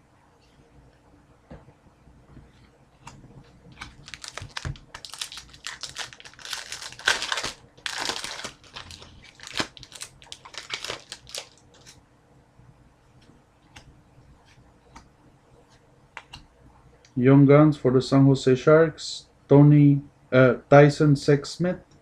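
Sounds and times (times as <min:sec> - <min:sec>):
foil wrapper crinkling and tearing: 0:03.8 - 0:12.0.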